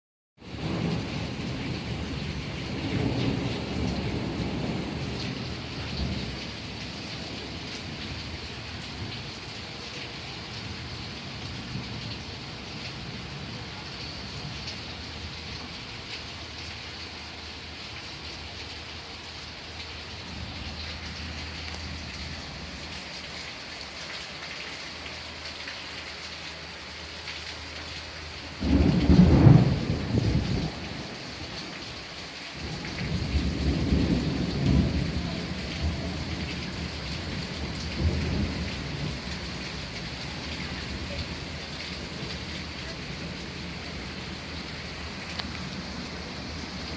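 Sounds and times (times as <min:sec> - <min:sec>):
steady rain falling: 0:00.4 - 0:46.9
thunder clap and rumble: 0:00.5 - 0:08.2, 0:28.6 - 0:31.8, 0:32.6 - 0:46.9.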